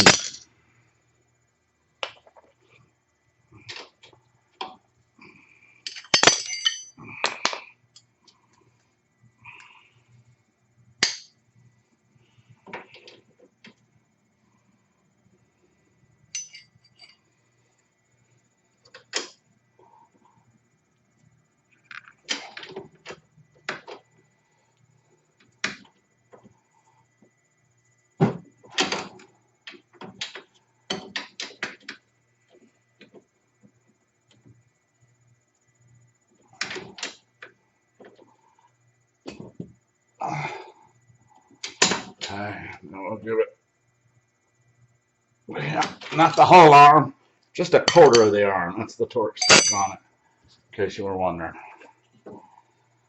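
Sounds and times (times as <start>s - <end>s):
tools clinking against metal: 0.0s - 0.4s, 5.8s - 8.1s, 11.0s - 11.3s, 16.3s - 17.2s, 47.8s - 48.4s, 49.4s - 50.0s
faint steady hum: 0.0s - 53.0s.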